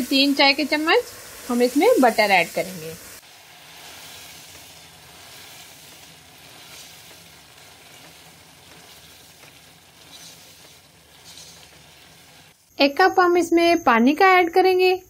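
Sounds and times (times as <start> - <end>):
chicken sizzling in a pot: 0.0 - 12.8
spatula stirring: 3.2 - 12.6.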